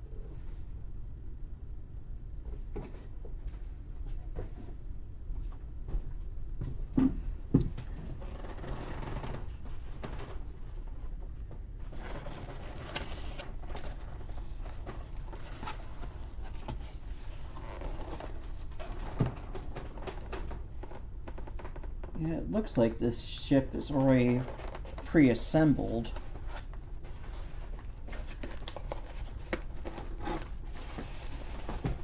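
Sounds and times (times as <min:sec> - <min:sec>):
packaging rustling: 0:23.6 - 0:32.0.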